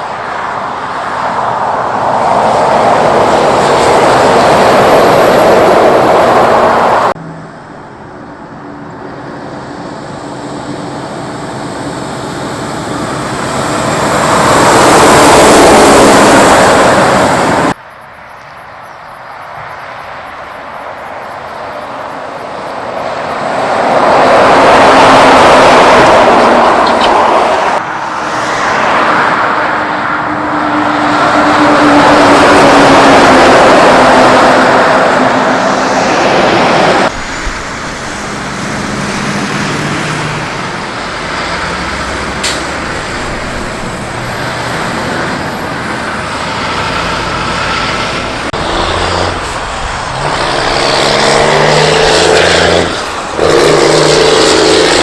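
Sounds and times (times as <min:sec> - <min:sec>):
trucks driving past: 0:00.0 - 0:17.9, 0:19.4 - 0:55.0
truck engine humming: 0:31.5 - 0:55.0.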